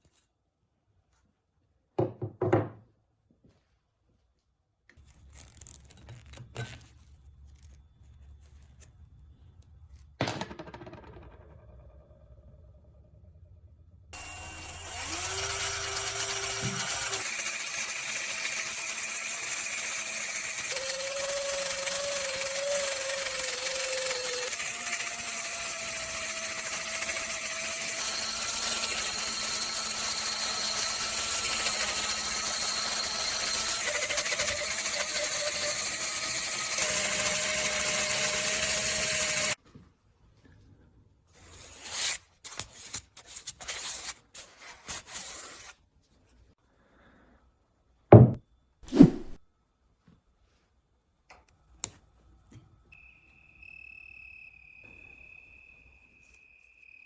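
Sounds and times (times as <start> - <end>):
short scraping sounds: 48.9 - 49.4.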